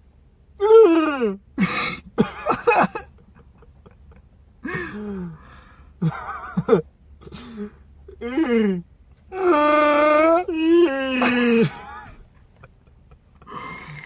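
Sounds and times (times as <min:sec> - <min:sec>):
person howling and moaning: 0:08.2 - 0:12.0.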